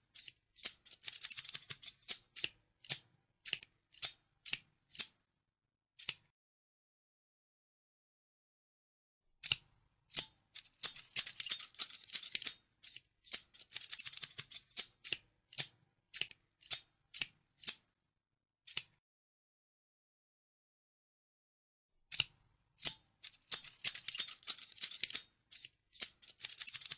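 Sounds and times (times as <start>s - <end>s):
scissors snipping: 0.1s - 5.2s, 6.0s - 6.3s, 9.4s - 17.8s, 18.7s - 19.0s, 22.1s - 26.9s.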